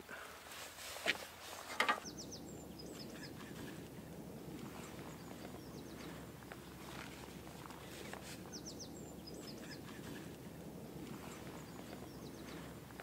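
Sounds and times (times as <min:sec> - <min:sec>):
faint outdoor background noise: 0:00.0 - 0:13.0
soft rustles: 0:00.3 - 0:02.0, 0:03.4 - 0:08.6
footsteps: 0:00.5 - 0:02.0
small birds chirping: 0:01.5 - 0:13.0.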